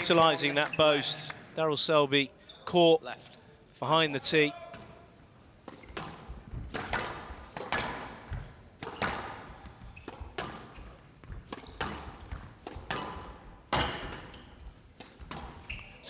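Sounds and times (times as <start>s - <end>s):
squash ball striking rackets and walls: 5.7s - 16.0s.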